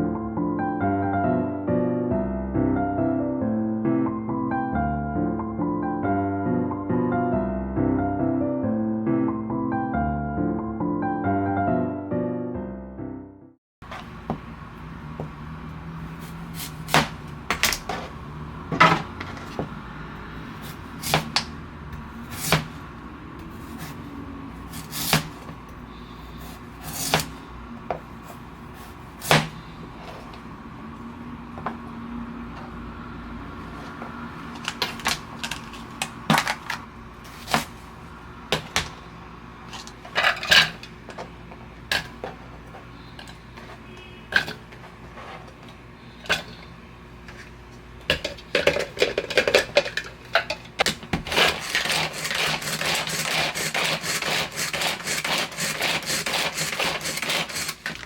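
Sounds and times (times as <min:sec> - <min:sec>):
dishes and utensils clattering: 0:39.8 - 0:41.2, 0:48.1 - 0:52.2.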